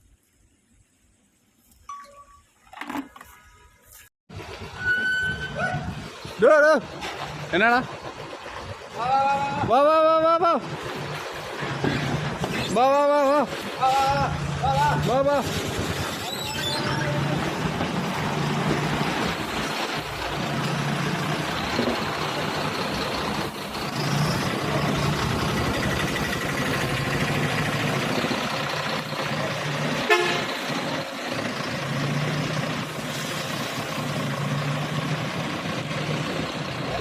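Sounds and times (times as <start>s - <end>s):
traffic noise: 2.6s - 37.0s
truck running: 2.8s - 37.0s
vehicle horn tooting: 30.0s - 30.6s.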